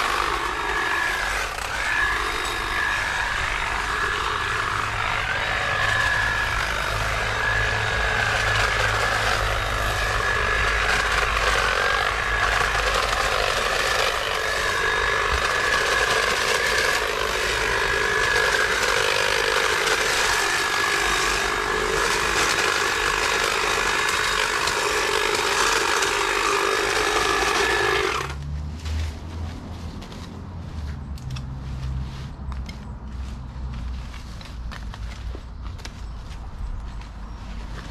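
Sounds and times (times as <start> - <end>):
blades rattling: 0.0 - 28.4
hedge trimmer whining: 0.0 - 29.2.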